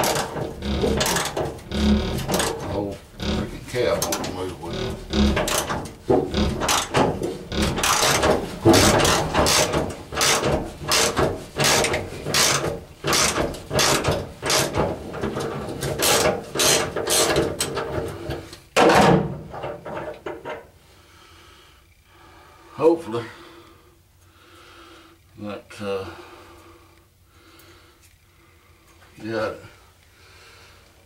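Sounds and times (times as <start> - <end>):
bolt scraping through rusty threads: 0.0 - 18.7.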